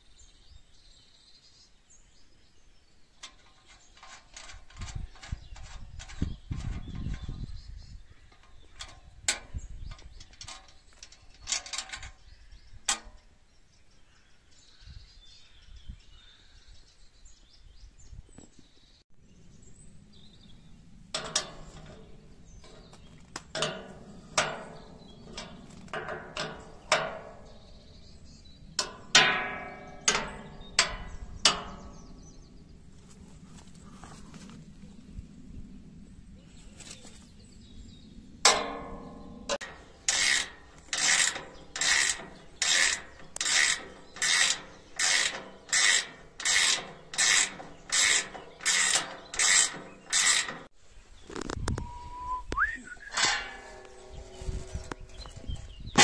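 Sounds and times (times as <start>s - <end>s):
metal clanking and knocking: 8.2s - 12.2s, 21.1s - 32.5s, 38.4s - 50.7s, 53.0s - 56.0s.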